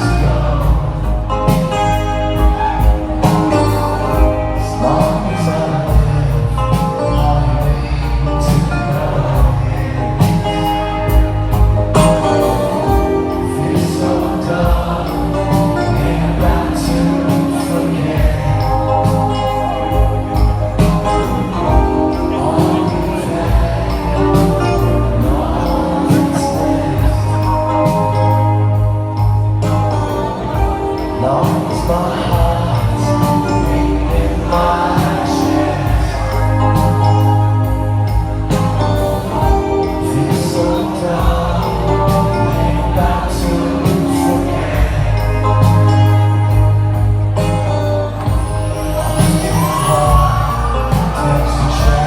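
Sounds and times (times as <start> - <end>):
bass line: 0.0 - 52.0
electric guitar: 0.0 - 52.0
live band music: 0.0 - 52.0
man singing lead: 0.0 - 52.0.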